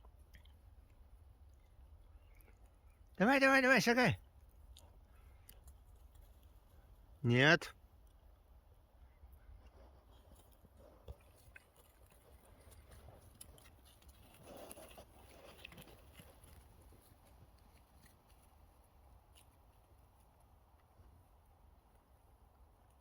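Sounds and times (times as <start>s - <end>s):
rustling: 9.7s - 20.4s.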